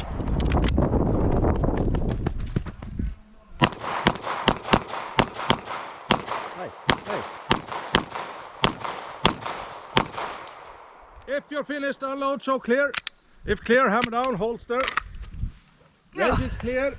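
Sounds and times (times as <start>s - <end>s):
handgun shots with echo: 3.6s - 10.7s.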